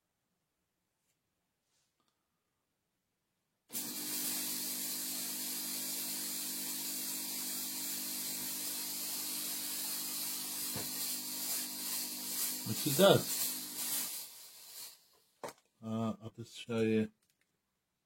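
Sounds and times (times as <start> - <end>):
fog machine pump motor buzzing: 3.7 - 15.0
fog hissing from nozzle: 3.7 - 15.2.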